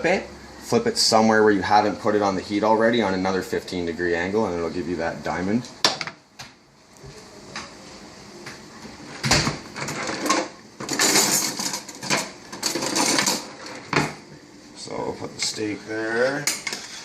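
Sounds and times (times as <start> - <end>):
utensils and dishes clattering: 9.8 - 14.2.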